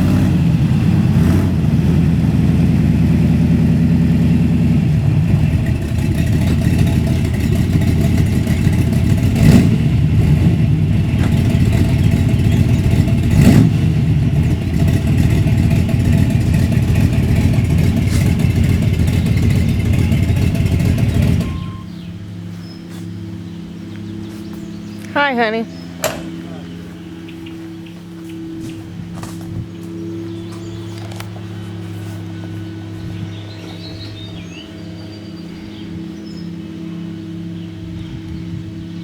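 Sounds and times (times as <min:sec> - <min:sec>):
engine running at low revs: 0:00.0 - 0:39.0
short knocks: 0:26.0 - 0:26.5.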